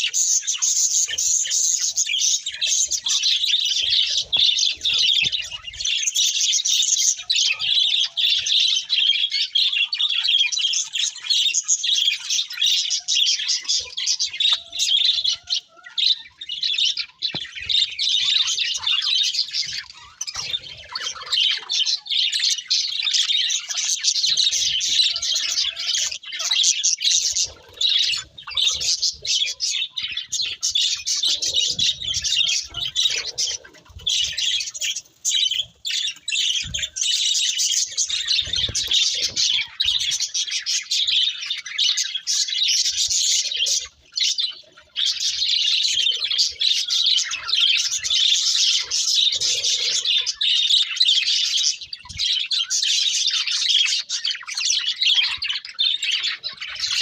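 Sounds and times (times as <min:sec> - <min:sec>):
budgerigars chattering and warbling: 0:00.0 - 0:57.0.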